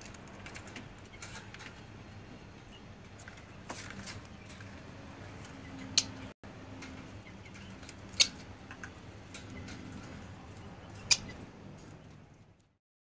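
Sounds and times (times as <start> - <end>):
poultry chirps and calls: 7.0 - 12.2.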